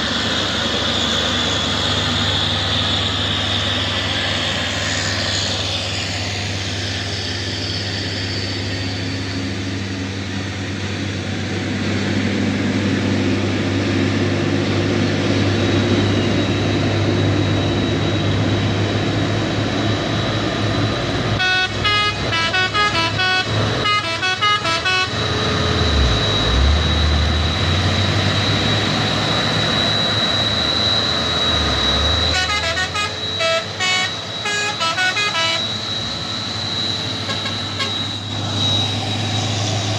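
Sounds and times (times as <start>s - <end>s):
truck engine running: 0.0s - 39.9s
multi-tone musical horn: 21.4s - 26.1s, 32.3s - 35.7s, 37.3s - 38.0s.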